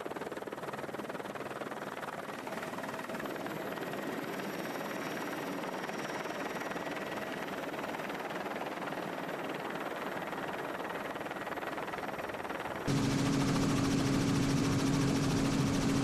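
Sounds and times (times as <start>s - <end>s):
helicopter rotor beating: 12.4s - 16.0s.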